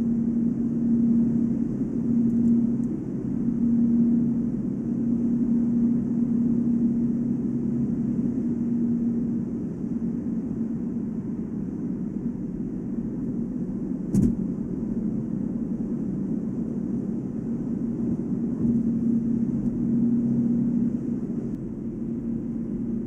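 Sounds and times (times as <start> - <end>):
short thump: 14.1 - 14.5.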